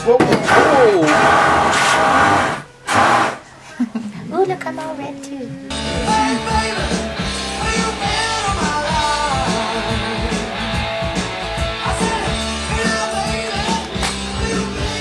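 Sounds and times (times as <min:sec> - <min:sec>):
bass notes: 0:00.0 - 0:03.6, 0:05.4 - 0:15.0
guitar melody: 0:04.6 - 0:15.0
steady drum beat: 0:05.7 - 0:15.0.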